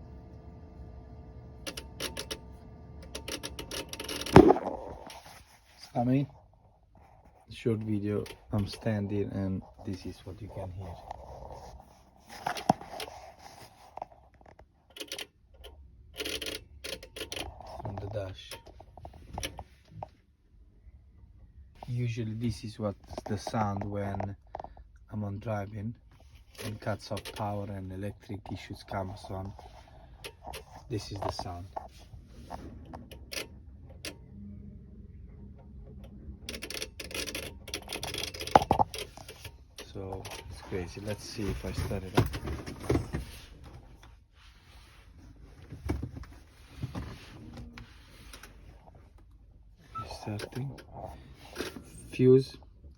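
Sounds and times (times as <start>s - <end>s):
electrical clicking and buzzing: 1.6s - 5.2s
low electrical hum with clicks: 21.1s - 44.2s.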